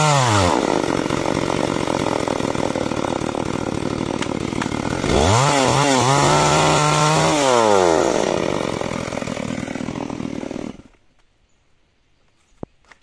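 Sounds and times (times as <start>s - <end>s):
chainsaw engine at full throttle: 0.0s - 11.0s.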